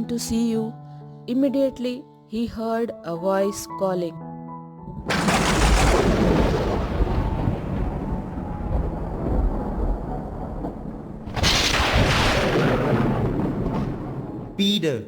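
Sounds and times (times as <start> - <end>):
thunder crack and rumble: 4.9 - 14.6.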